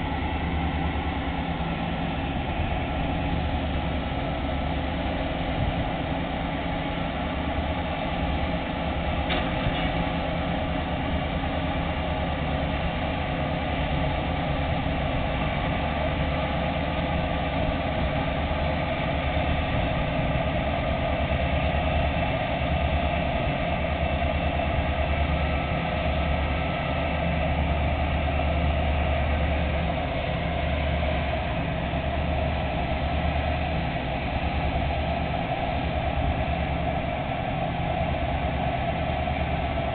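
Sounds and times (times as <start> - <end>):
diesel engines humming: 0.0 - 39.9.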